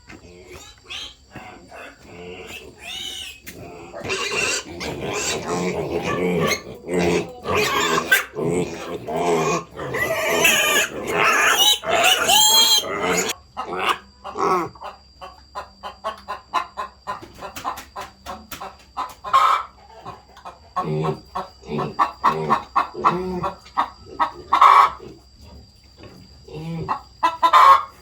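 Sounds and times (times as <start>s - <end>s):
chickens clucking: 0.0s - 28.0s
loud animal cries: 0.5s - 14.8s, 20.8s - 25.1s.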